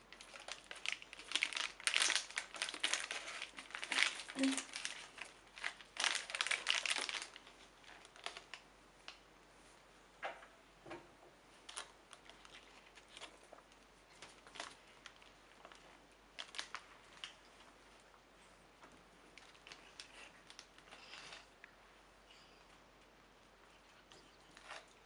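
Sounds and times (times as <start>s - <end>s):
rustling and crinkling: 0.0s - 25.0s.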